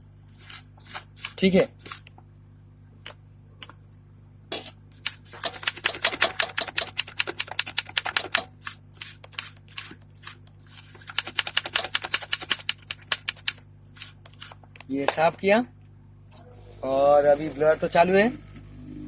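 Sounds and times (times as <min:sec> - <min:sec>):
brush scrubbing circuit board: 0:05.0 - 0:15.3.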